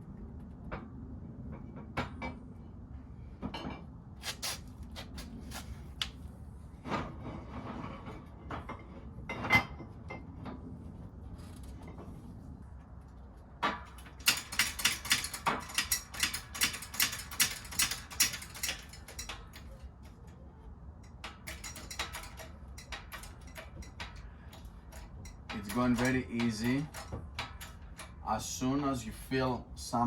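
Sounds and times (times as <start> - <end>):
sharp metallic clicks: 14.0 - 19.8, 21.0 - 28.4.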